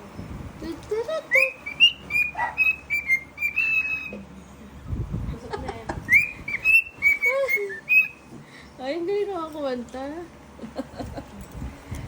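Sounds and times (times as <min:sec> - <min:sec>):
cockatiel whistling a tune: 0:01.3 - 0:04.2, 0:06.1 - 0:08.2.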